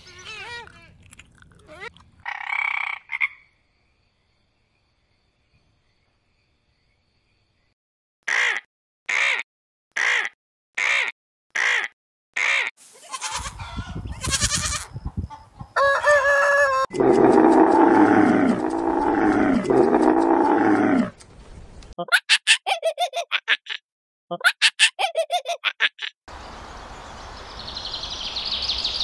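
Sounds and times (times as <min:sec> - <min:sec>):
chickens clucking: 0:13.3 - 0:14.2, 0:14.8 - 0:17.8.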